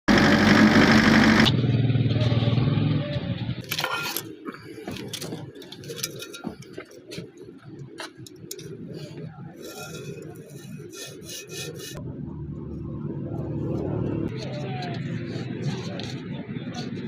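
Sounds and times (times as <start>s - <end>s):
vehicle engine hum: 0.1s - 17.0s
scraping sounds: 3.7s - 12.0s.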